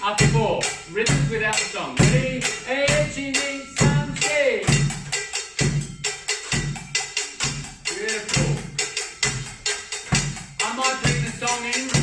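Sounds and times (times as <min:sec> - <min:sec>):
high scraper bell and drum strikes: 0:00.0 - 0:12.0
low taiko drum strikes: 0:00.2 - 0:07.6.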